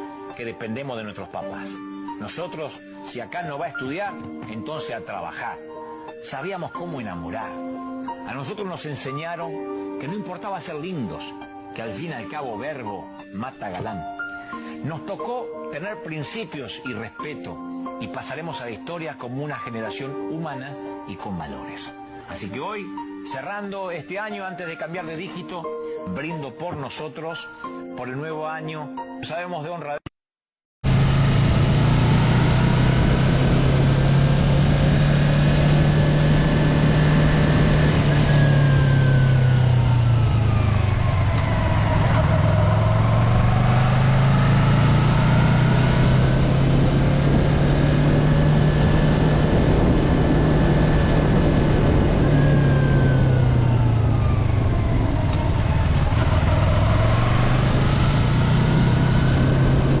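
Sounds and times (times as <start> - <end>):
engine running loudly: 30.8 - 60.0.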